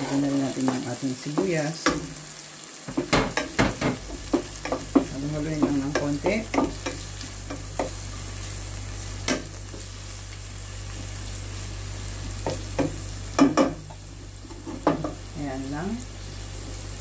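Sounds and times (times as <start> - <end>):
spatula scraping and knocking pan: 0.0 - 8.2, 12.4 - 15.2
vegetables sizzling in oil: 0.0 - 17.0.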